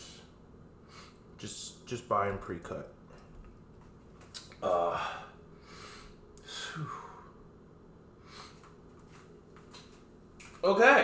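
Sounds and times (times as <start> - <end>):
man sighing: 4.6 - 5.4, 6.4 - 7.4.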